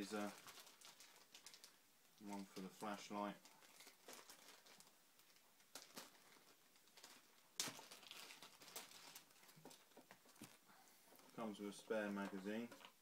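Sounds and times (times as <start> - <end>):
handling rustles and clicks: 12.2 - 13.0.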